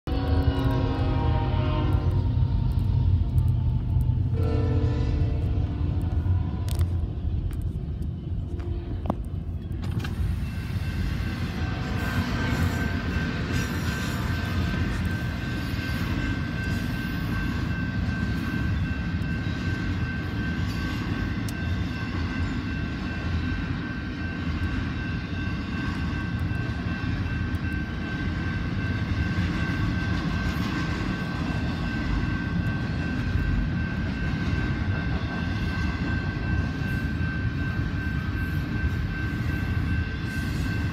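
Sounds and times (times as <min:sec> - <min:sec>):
freight train rumbling past: 0:00.1 - 0:40.9.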